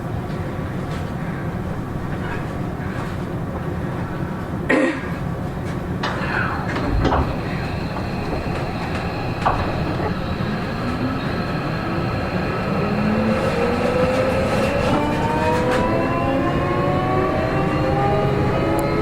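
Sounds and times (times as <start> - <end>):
train wheels rumbling: 0.0 - 19.0
train traction motors whining: 5.7 - 19.0.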